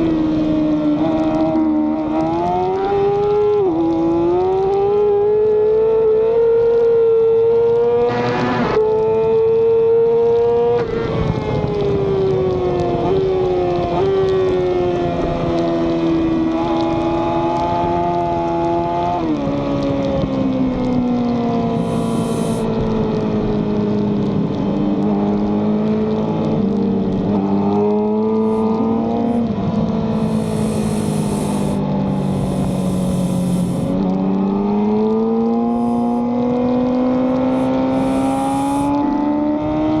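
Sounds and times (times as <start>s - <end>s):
wind noise: 10.8s - 24.7s, 28.4s - 34.3s, 35.3s - 40.0s
racing motorcycle engine: 21.6s - 22.7s, 27.4s - 40.0s.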